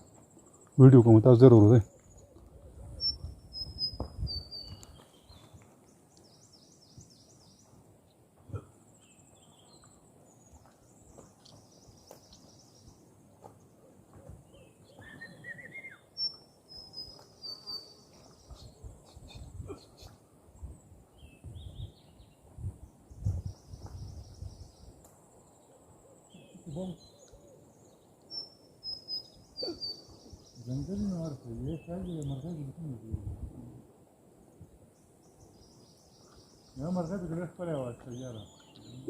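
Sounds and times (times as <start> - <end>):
bird chirps and trills: 1.2 - 5.5, 14.5 - 20.2, 25.5 - 32.7.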